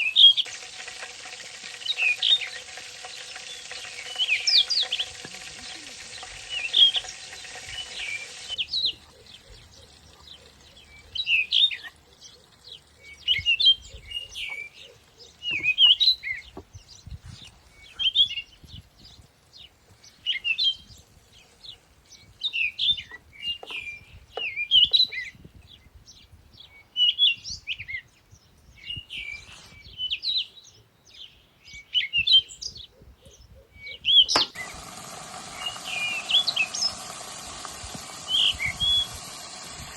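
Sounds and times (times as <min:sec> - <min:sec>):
steady hiss: 0:00.0 - 0:11.5, 0:34.4 - 0:39.9
songbird singing: 0:00.0 - 0:39.9.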